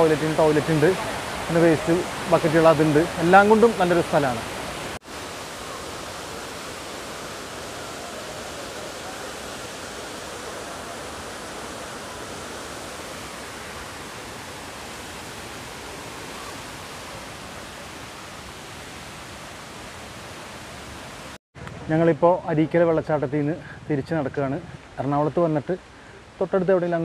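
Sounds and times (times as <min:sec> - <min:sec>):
waterfall rushing: 0:00.0 - 0:21.4.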